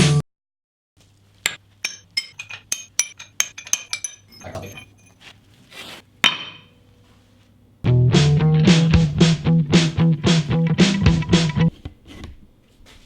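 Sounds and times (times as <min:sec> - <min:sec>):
metal scraping: 0:01.9 - 0:05.4.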